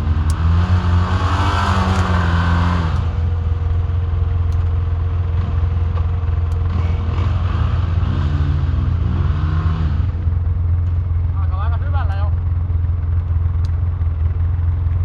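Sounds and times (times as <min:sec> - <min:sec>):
atv engine revving: 0:00.0 - 0:03.4, 0:05.3 - 0:11.0.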